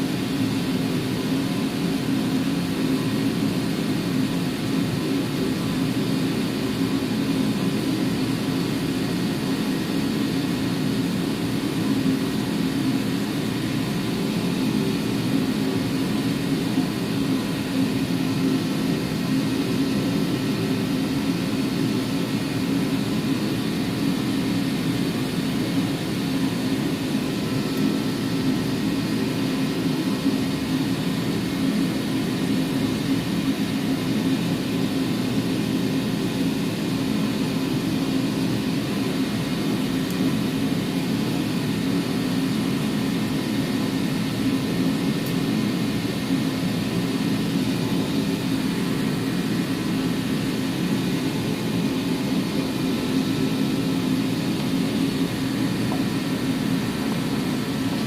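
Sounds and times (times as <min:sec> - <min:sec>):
mechanical drone with low hum: 0:00.0 - 0:58.0.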